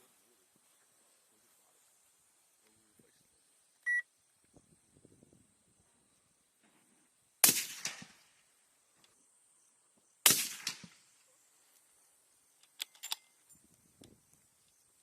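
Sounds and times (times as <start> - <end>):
rifle shots with echo: 7.4 - 8.4, 10.2 - 11.2.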